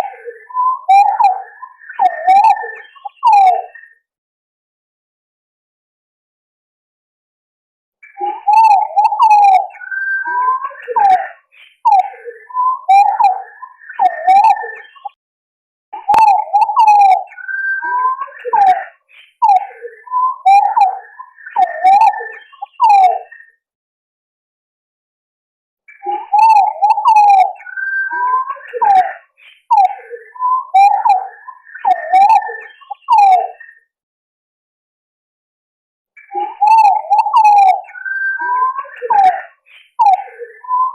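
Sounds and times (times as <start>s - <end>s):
pigeons calling: 8.4s - 15.2s, 16.0s - 23.2s, 26.3s - 33.6s, 36.4s - 40.9s.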